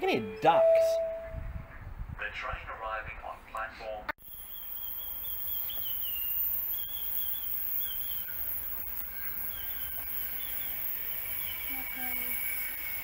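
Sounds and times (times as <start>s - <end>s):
birds chirping: 4.2s - 13.0s
steady outdoor hiss: 4.2s - 13.0s.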